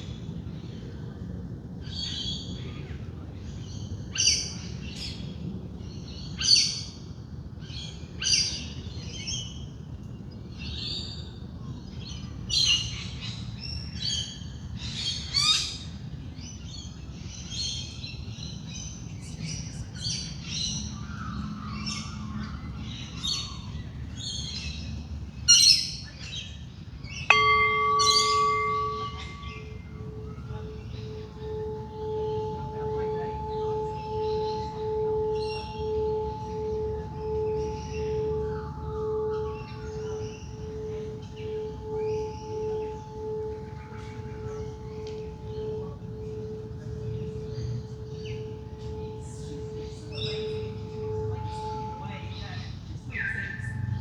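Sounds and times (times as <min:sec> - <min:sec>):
singing bowl ringing: 0:27.1 - 0:54.0
birds chirping and calling: 0:27.2 - 0:54.0.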